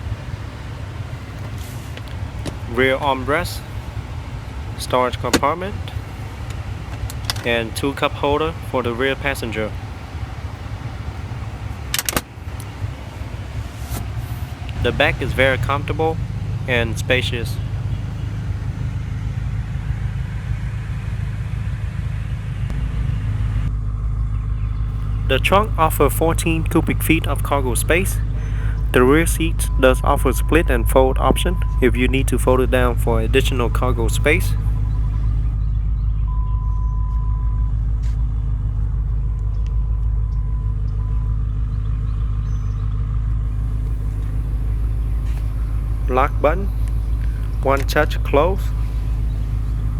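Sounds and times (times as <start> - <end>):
car engine idling: 0.0 - 22.8, 23.8 - 36.2, 38.4 - 49.9
faint clicks: 1.3 - 2.8, 46.7 - 49.9.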